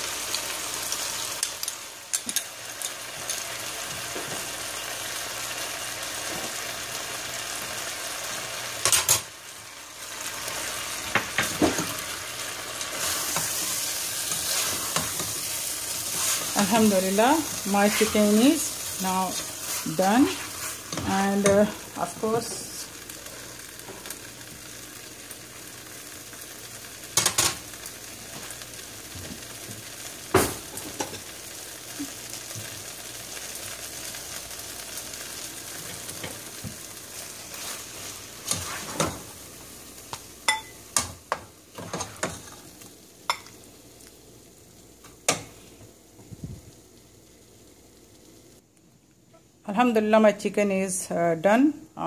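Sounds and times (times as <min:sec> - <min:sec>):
chicken sizzling in a pan: 0:00.0 - 0:48.6
spatula scraping a pan: 0:12.8 - 0:21.9, 0:37.1 - 0:39.2.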